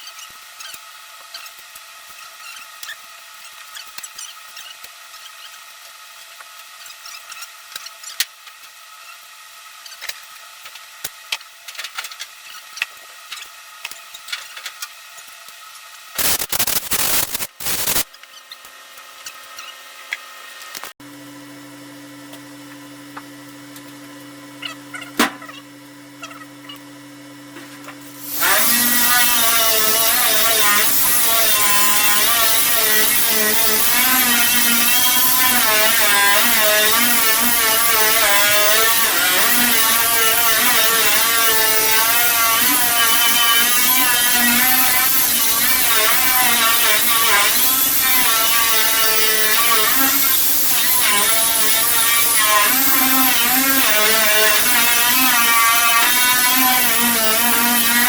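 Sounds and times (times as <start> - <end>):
power tool stripping paint: 16.2 - 18.1, 28.1 - 58.0.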